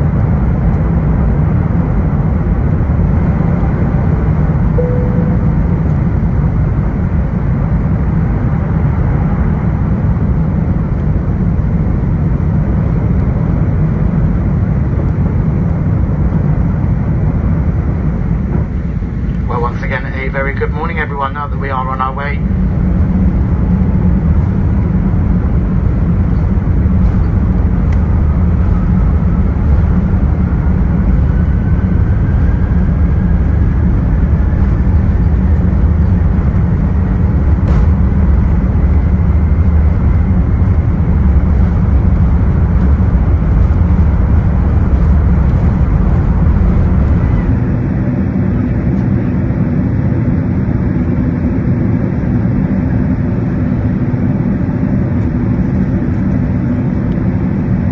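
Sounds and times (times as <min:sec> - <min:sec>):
aircraft cabin engine rumble: 0:00.0 - 0:57.9
faint rising whine: 0:04.7 - 0:07.0, 0:22.6 - 0:49.6.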